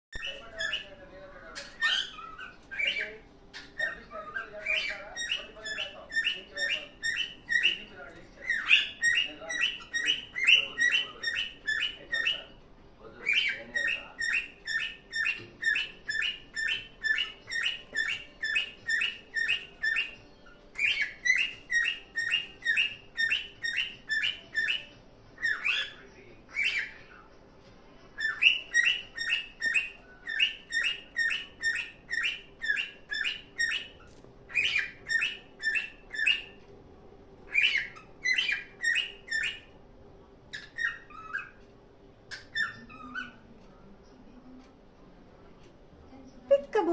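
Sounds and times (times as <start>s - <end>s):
cockatiel whistled chirps: 13.3s - 20.2s, 28.2s - 36.6s, 37.5s - 39.7s.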